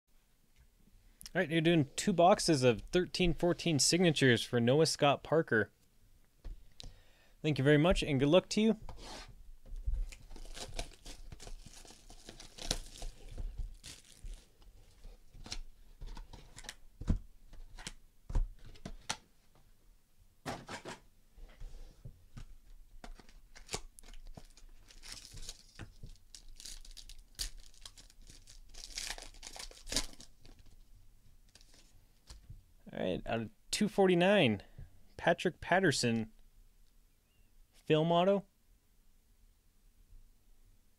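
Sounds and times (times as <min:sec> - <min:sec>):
plastic wrapping tearing and crinkling: 0:10.0 - 0:15.6, 0:23.5 - 0:30.8.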